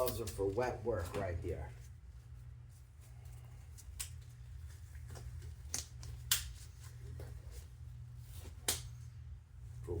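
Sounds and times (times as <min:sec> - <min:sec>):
steady low hum: 0:00.0 - 0:10.0
glove snaps: 0:03.8 - 0:04.4, 0:05.1 - 0:06.7, 0:08.4 - 0:09.1.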